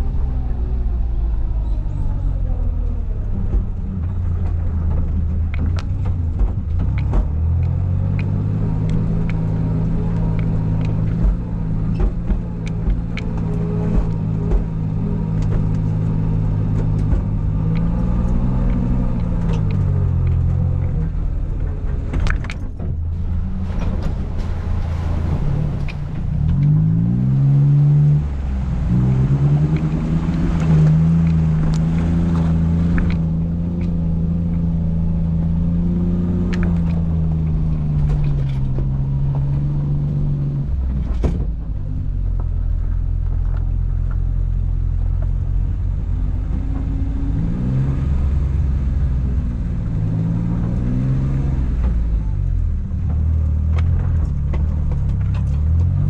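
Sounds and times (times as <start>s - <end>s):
small car engine at low revs: 0.0s - 56.0s
clicks and knocks: 3.4s - 28.1s.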